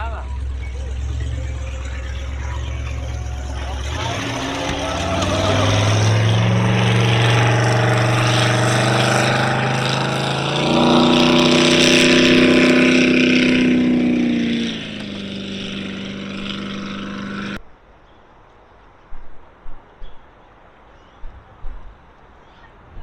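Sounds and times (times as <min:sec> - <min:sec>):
outboard motor running: 0:00.0 - 0:17.6.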